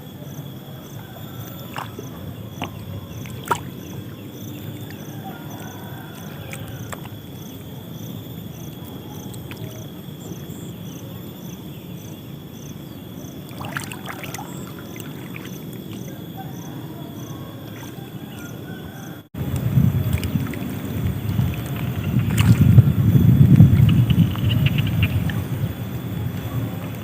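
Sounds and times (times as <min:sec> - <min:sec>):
insect chirping: 0:00.0 - 0:27.0
wind: 0:00.0 - 0:27.0
water rushing: 0:01.0 - 0:07.2, 0:13.4 - 0:16.2, 0:19.4 - 0:27.0
light splashes: 0:01.4 - 0:07.2, 0:08.8 - 0:09.9, 0:13.4 - 0:16.2, 0:19.5 - 0:25.8.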